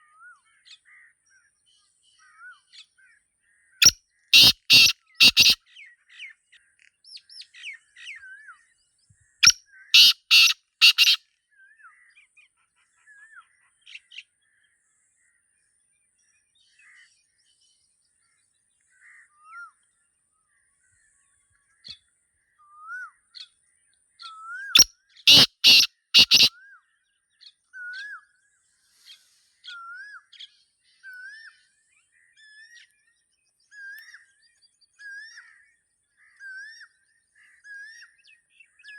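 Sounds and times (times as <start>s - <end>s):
small birds chirping: 3.8s - 5.6s, 9.4s - 11.2s, 24.8s - 26.5s
francolin harsh grating call: 4.4s - 5.6s, 9.4s - 11.2s, 24.8s - 26.5s.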